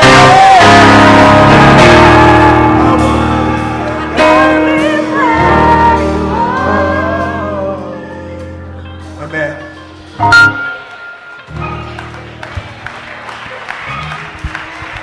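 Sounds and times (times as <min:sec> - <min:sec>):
voices singing worship song: 0:00.0 - 0:09.2
guitar: 0:00.0 - 0:15.0.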